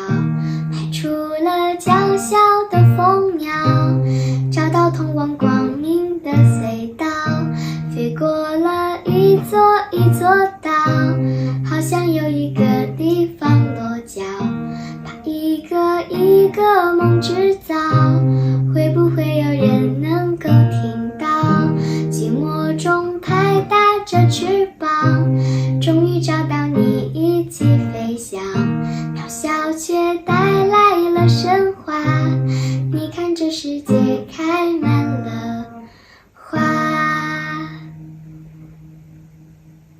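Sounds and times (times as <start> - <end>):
person singing: 0.0 - 38.0
acoustic guitar strumming: 36.5 - 39.9.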